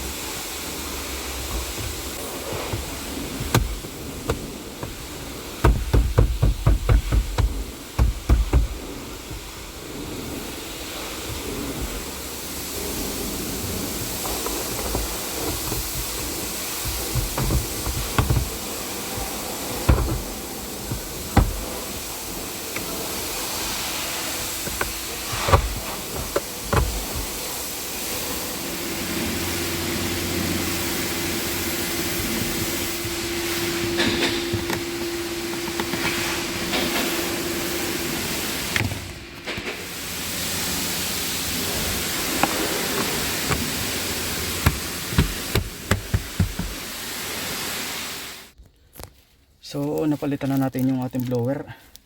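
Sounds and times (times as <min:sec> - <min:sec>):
steady hiss: 0:00.0 - 0:48.6
knocks and clicks of hand work: 0:01.4 - 0:09.6, 0:14.0 - 0:21.9, 0:24.4 - 0:27.4, 0:32.0 - 0:36.1, 0:44.6 - 0:46.8.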